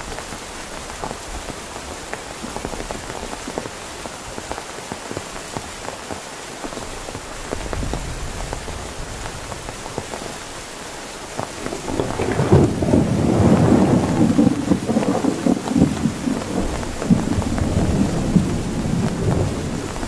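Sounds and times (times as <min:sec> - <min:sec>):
heavy rain pattering: 0:00.0 - 0:20.0
raindrops striking close by: 0:00.0 - 0:20.0
thunder rolling: 0:11.4 - 0:20.0.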